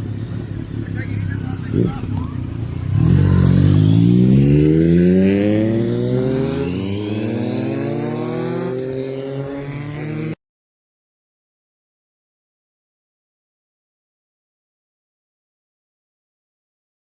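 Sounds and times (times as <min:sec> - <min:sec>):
motorcycle engine accelerating: 0:00.0 - 0:10.4.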